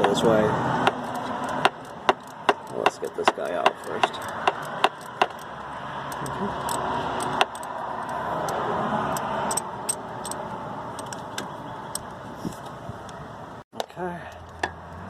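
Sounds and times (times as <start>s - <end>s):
metallic rattling and ticking: 0.0s - 12.2s
ratchet clicking: 0.8s - 11.3s.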